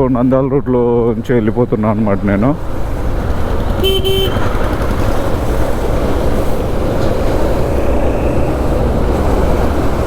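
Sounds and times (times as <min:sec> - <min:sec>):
motorcycle engine running: 0:02.6 - 0:06.5.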